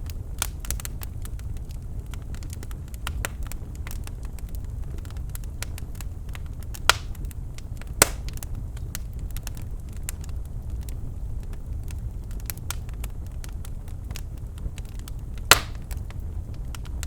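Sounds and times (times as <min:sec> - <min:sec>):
fire crackling: 0:00.0 - 0:17.0
fire rumbling: 0:00.0 - 0:17.0
loud wood pops: 0:06.9 - 0:07.2, 0:08.0 - 0:08.4, 0:15.5 - 0:16.0.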